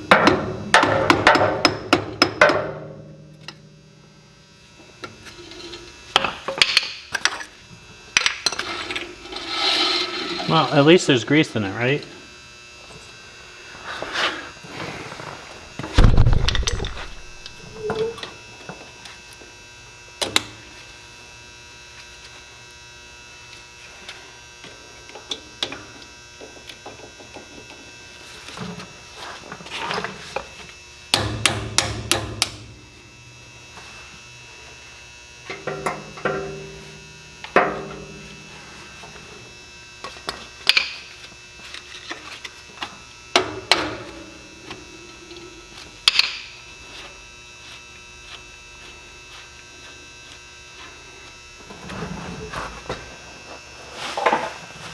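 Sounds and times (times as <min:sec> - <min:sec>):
steady hum: 0:02.6 - 0:18.5
heavy thump: 0:15.8 - 0:17.8.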